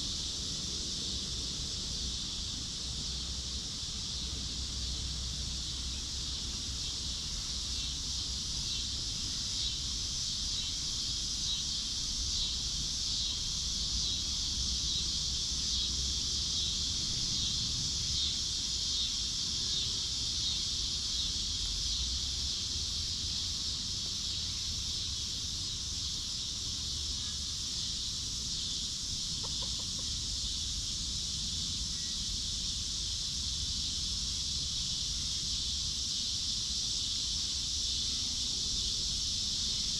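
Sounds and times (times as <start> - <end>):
high-pitched buzzing hiss: 0.0 - 39.9
chickens clucking: 29.4 - 30.2.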